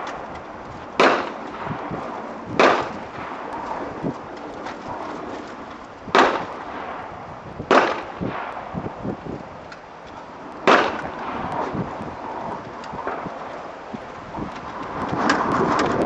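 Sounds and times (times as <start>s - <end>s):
rifle shots with echo: 1.0s - 3.5s, 6.1s - 9.0s, 10.6s - 11.7s.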